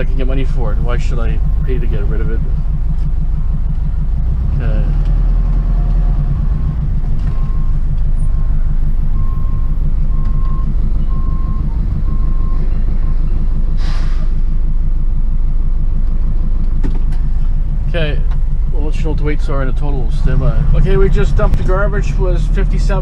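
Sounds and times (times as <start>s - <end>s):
truck engine rumbling: 0.0s - 23.0s
reversing alarm beeping: 7.2s - 13.6s
short hiss: 13.8s - 14.4s.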